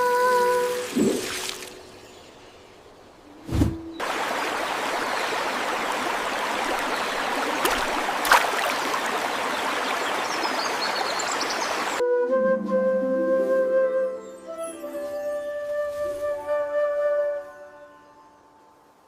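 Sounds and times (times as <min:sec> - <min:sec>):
water rushing: 0:00.1 - 0:01.9, 0:03.5 - 0:12.0.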